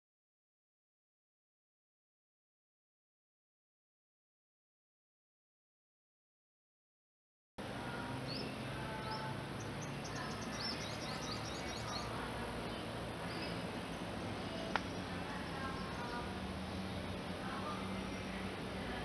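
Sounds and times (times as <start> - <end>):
small birds chirping: 7.8 - 19.0.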